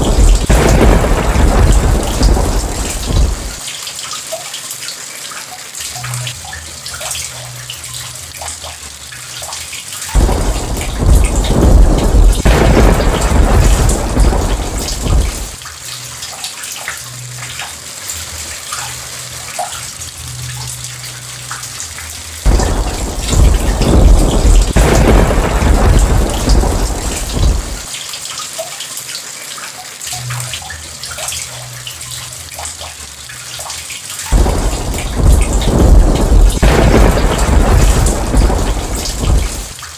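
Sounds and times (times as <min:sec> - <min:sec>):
rolling thunder: 0:00.0 - 0:03.6, 0:10.2 - 0:15.6, 0:22.5 - 0:27.9, 0:34.3 - 0:39.8
heavy rain: 0:00.0 - 0:39.9.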